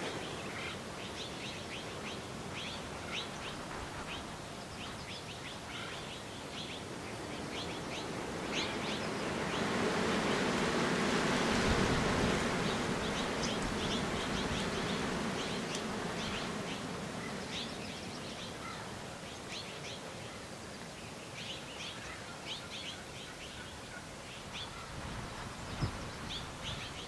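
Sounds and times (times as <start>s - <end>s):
rushing wind-like noise: 0.0s - 19.2s, 23.8s - 27.0s
small birds chirping: 12.4s - 27.0s.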